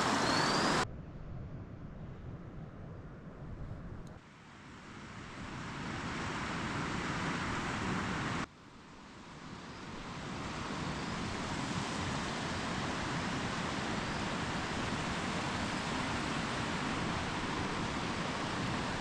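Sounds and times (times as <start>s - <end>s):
steady rushing noise: 0.0s - 0.8s.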